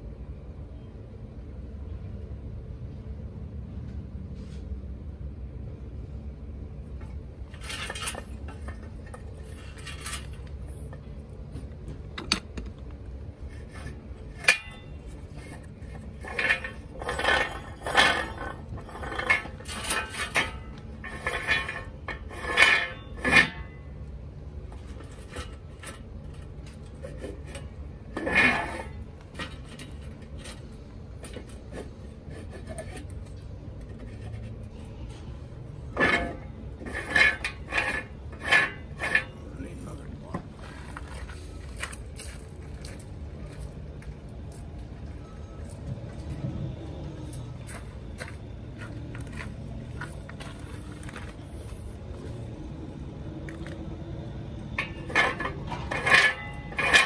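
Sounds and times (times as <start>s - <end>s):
steady low hum: 0.0s - 57.0s
metal tools clinking and scraping: 7.5s - 11.3s, 13.3s - 24.0s, 24.7s - 43.8s, 54.6s - 57.0s.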